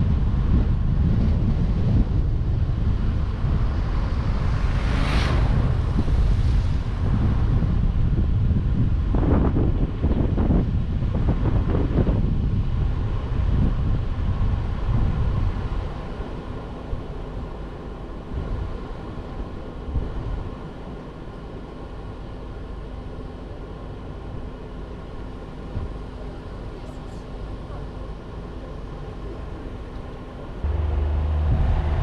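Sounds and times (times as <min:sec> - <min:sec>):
wind noise: 0:00.0 - 0:17.7, 0:30.6 - 0:32.0
car engine and tyre noise: 0:00.0 - 0:32.0.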